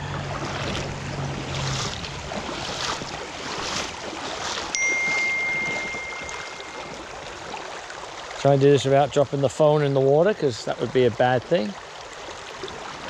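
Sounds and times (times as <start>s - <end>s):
creek water flowing over rocks: 0.0s - 13.0s
water splashes: 0.0s - 13.0s
high-pitched electronic tone: 4.8s - 7.3s.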